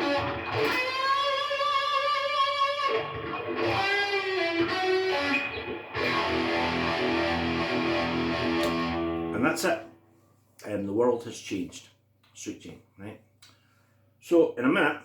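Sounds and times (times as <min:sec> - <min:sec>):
electric guitar notes and chords: 0:00.0 - 0:09.4.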